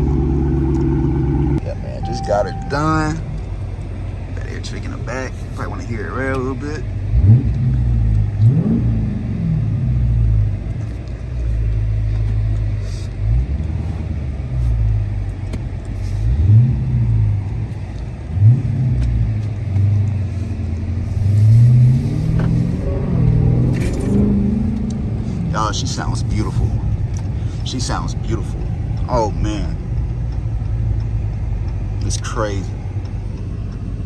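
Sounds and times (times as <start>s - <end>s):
car engine revving and idling: 0.0s - 34.0s.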